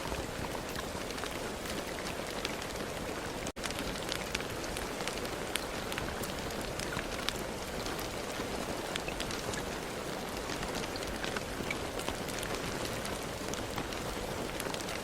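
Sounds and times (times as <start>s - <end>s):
raindrops ticking on a surface: 0.0s - 15.0s
steady rain: 0.0s - 15.0s.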